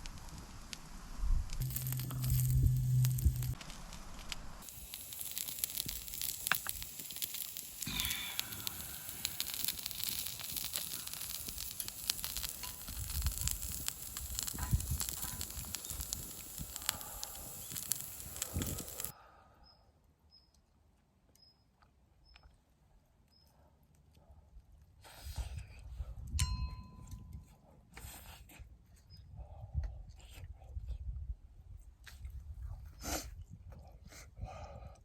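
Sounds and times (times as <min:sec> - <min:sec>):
campfire crackling and popping: 0:00.0 - 0:19.1
faint high ticks: 0:04.6 - 0:19.1.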